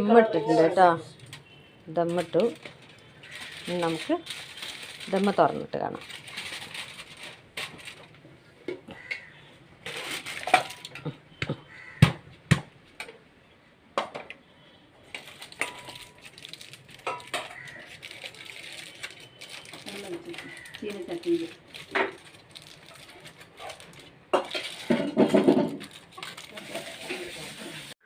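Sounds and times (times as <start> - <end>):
metal cookware clinking: 15.5 - 16.2, 17.0 - 17.8.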